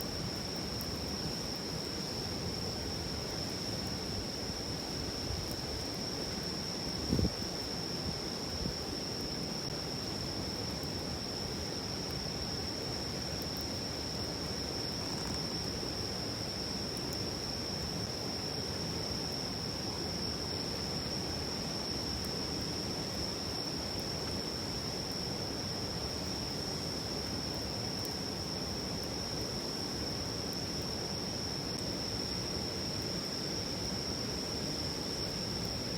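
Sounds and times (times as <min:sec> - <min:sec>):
insects trilling: 0:00.0 - 0:35.9.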